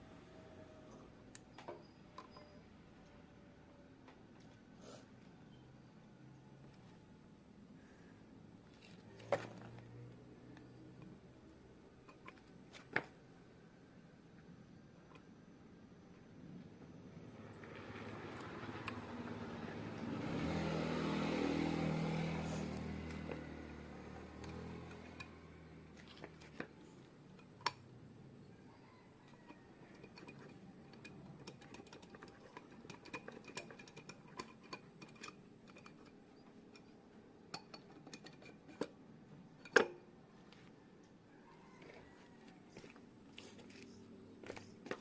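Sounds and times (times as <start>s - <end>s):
vehicle passing by: 17.4s - 27.1s.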